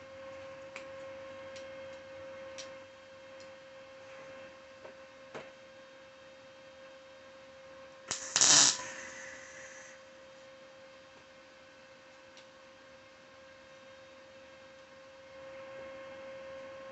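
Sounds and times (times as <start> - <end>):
welding burst: 8.1 - 9.9
electrical hum: 8.1 - 10.0.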